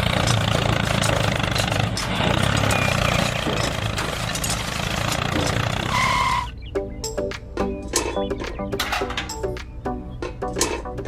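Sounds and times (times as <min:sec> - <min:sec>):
small tractor engine knocking: 0:00.0 - 0:06.2.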